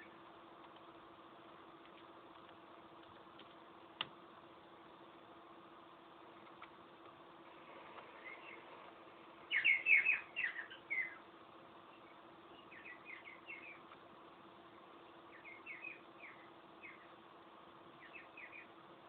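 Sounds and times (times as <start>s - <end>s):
cockatiel chirping: 9.5s - 11.2s, 15.3s - 17.1s.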